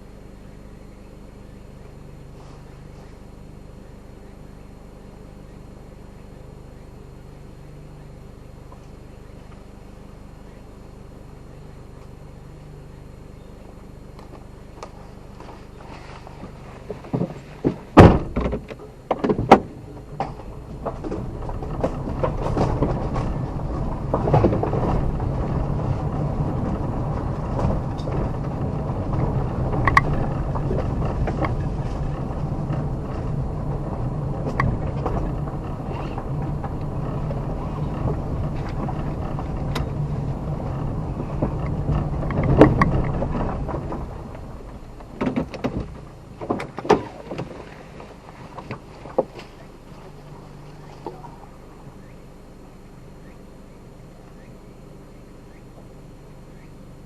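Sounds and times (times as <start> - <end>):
vehicle engine and road noise: 0.0 - 57.0
knocks and rattles: 16.4 - 51.4
loud thunks: 16.8 - 49.7.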